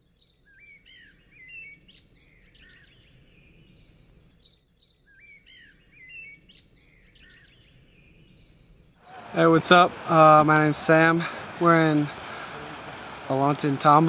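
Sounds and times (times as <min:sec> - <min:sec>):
faint songbird chirps and whistles: 0:00.0 - 0:09.1.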